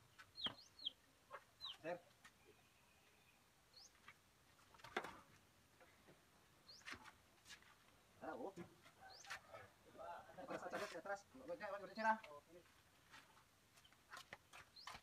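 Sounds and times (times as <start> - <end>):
faint bird chirps: 0.0 - 4.1, 6.6 - 7.0, 8.9 - 9.7.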